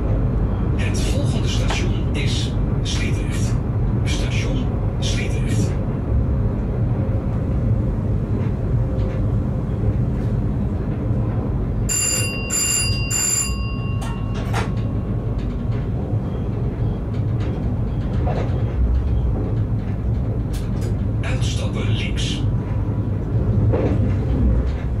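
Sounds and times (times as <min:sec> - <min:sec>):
train wheels rumbling: 0:00.0 - 0:25.0
short high bell-like beeps: 0:11.9 - 0:15.2.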